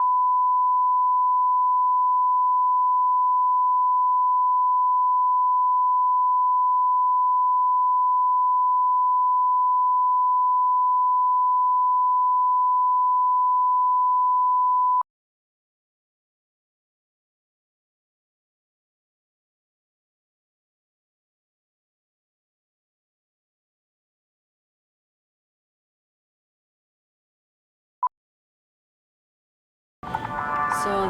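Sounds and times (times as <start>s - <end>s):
steady test tone: 30.0s - 31.0s.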